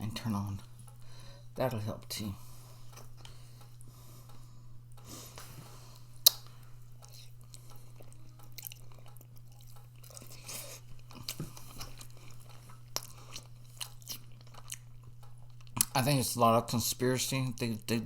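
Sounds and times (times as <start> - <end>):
person chewing food: 2.5 - 16.0.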